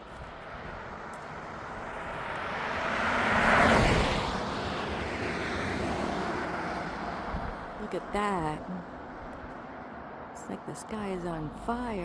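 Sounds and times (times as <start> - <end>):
vehicle passing by: 2.0 - 7.8.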